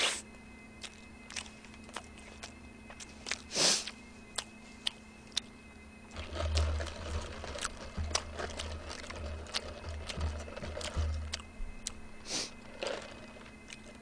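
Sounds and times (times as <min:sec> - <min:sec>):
chewing with low thumps: 0:00.8 - 0:05.5, 0:06.1 - 0:14.0
short hiss: 0:03.5 - 0:03.8, 0:12.3 - 0:12.5.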